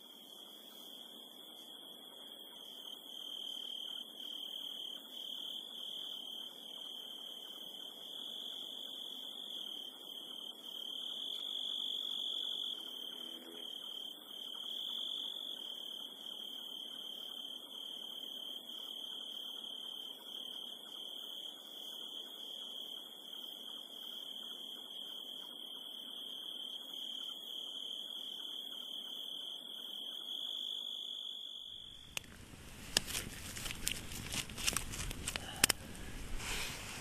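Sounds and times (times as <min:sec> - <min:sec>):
faint low hiss: 0:31.7 - 0:37.0.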